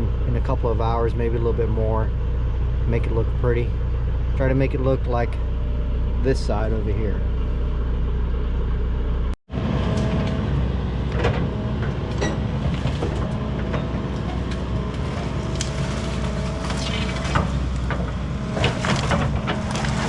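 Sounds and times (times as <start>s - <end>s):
excavator engine under load: 0.0s - 20.0s
branches cracking and snapping: 12.1s - 20.0s.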